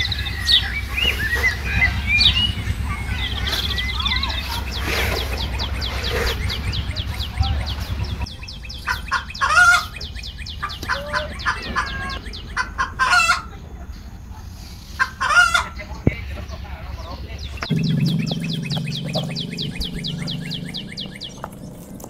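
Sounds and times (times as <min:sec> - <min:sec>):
chickens clucking: 0:00.0 - 0:22.0
high chirping calls: 0:00.0 - 0:22.0
low hum: 0:17.4 - 0:22.0.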